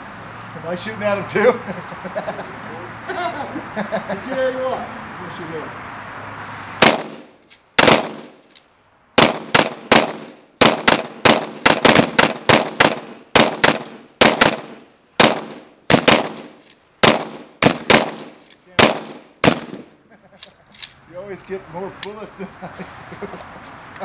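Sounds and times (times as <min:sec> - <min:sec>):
rapid pistol shots: 0:06.8 - 0:08.4, 0:09.2 - 0:19.9.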